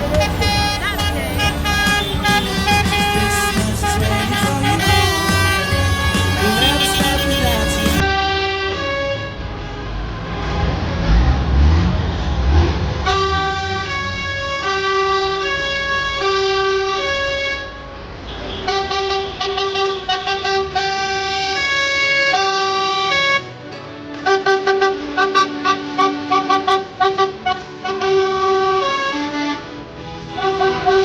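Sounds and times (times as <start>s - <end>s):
two-tone vehicle horns: 0.0s - 11.7s, 12.9s - 31.0s.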